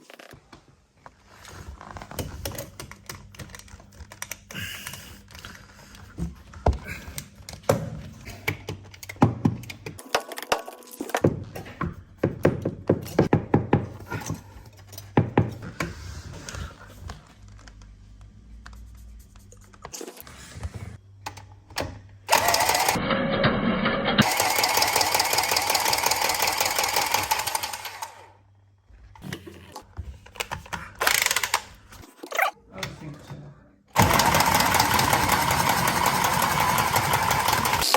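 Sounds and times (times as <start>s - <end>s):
tools and pipe clicking and knocking: 2.0s - 15.7s, 29.3s - 32.5s
pipe cutter motor cutting pipe: 22.3s - 28.2s, 34.0s - 37.9s.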